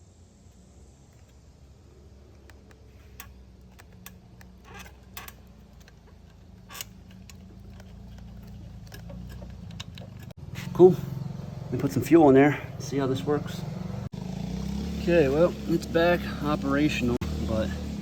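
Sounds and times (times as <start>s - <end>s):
light clicks and handling noises: 0.5s - 10.7s.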